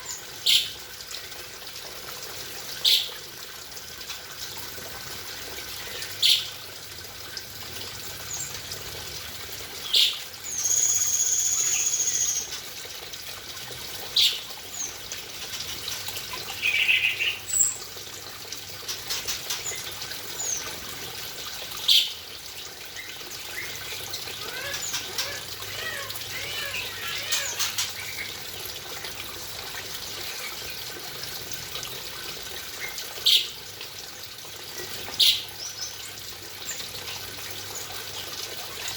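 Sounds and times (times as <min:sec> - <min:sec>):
running water: 0:00.0 - 0:38.9
bird whistled call: 0:10.5 - 0:12.5
small birds chirping: 0:14.2 - 0:17.9, 0:21.8 - 0:28.4.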